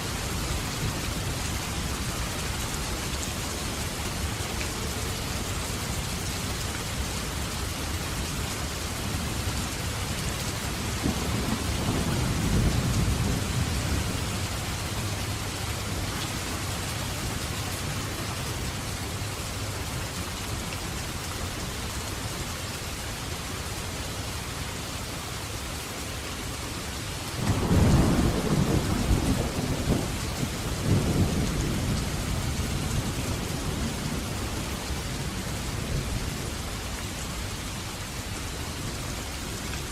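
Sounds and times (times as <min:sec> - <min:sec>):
steady rain falling: 0:00.0 - 0:39.9
thunder rumbling: 0:10.8 - 0:15.1, 0:27.4 - 0:36.6
loud thunderclap: 0:27.4 - 0:32.1.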